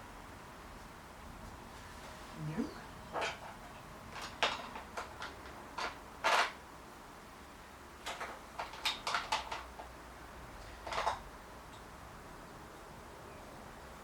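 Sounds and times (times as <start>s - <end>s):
hand tools and metal parts clinking: 3.1s - 6.6s, 8.0s - 10.0s, 10.6s - 11.8s.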